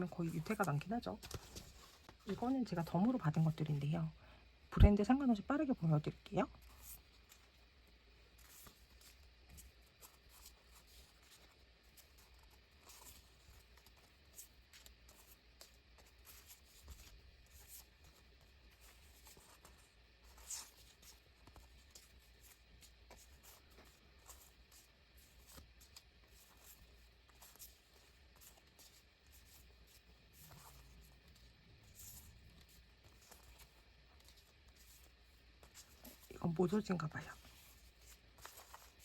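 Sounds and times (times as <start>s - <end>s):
paper sheets rustling: 0.0s - 3.0s, 8.3s - 39.0s
low steady hum: 0.0s - 39.0s.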